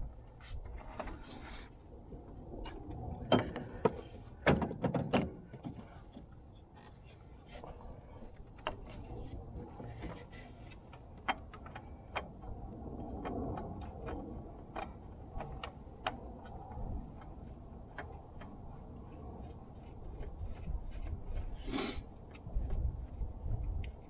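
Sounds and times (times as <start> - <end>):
low steady rumble: 5.7 - 24.0.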